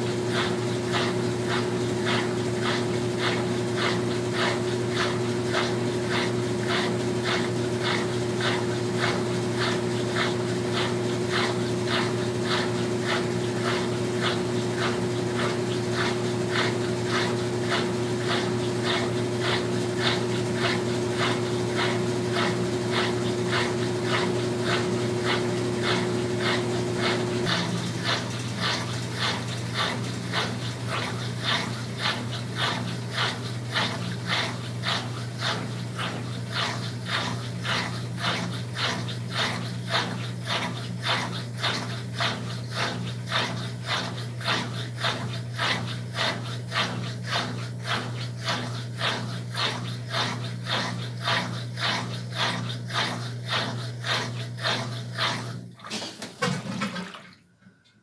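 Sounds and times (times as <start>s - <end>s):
rhythmic whooshing of washing machine: 0.0s - 58.0s
washing machine motor hum: 0.0s - 58.0s.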